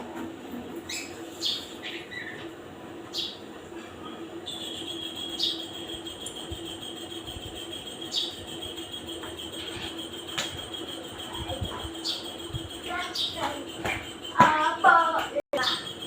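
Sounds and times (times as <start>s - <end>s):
bird chirping: 0.9s - 2.5s, 3.1s - 3.5s, 4.4s - 16.0s
steady high tone: 4.4s - 16.0s.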